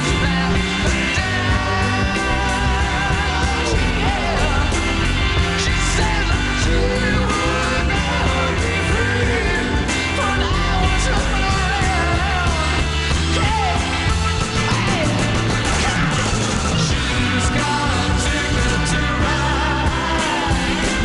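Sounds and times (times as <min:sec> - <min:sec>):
person singing: 0:00.0 - 0:21.0
rock band with heavy bass: 0:00.0 - 0:21.0.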